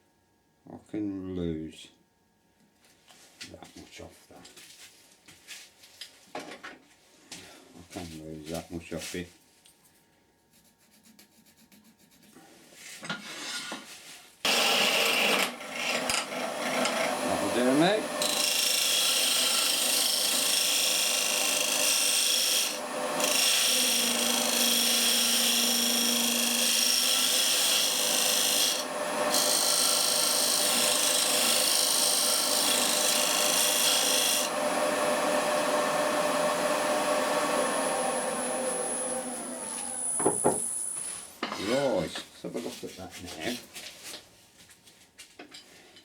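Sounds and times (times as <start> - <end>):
lathe running: 14.5 - 41.4
tool cutting wood on lathe: 14.5 - 41.5.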